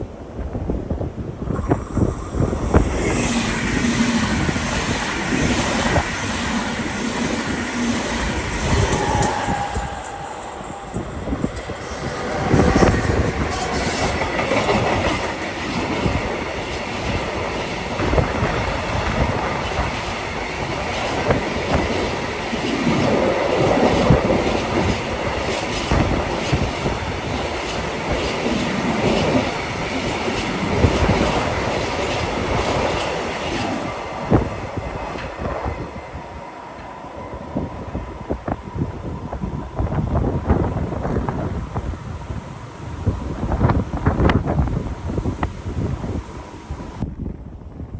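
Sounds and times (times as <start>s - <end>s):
train wheels clickety-clack: 1.7s - 36.2s.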